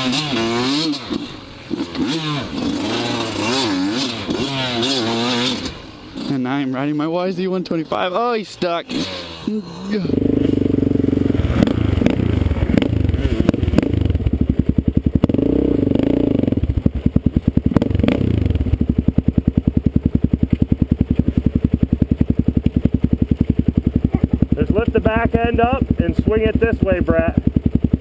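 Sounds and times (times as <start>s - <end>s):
dirt bike engine running: 0.0s - 28.0s.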